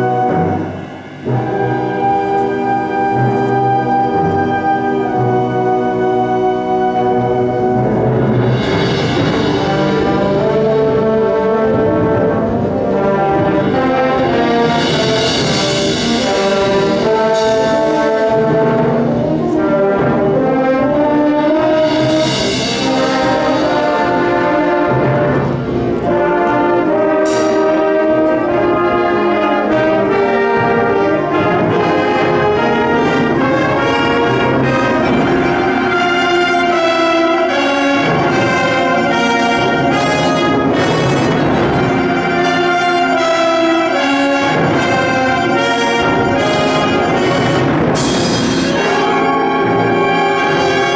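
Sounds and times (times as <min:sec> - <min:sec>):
wind band playing: 0:00.0 - 0:50.9
sharp percussion strikes: 0:08.4 - 0:11.1, 0:29.7 - 0:50.9.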